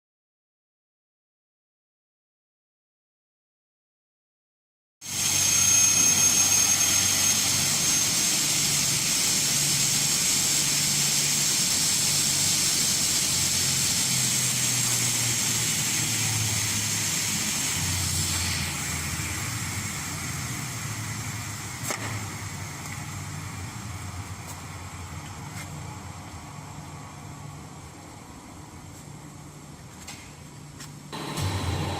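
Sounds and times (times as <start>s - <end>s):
cutting saw whine: 5.0s - 21.6s, 31.2s - 31.9s.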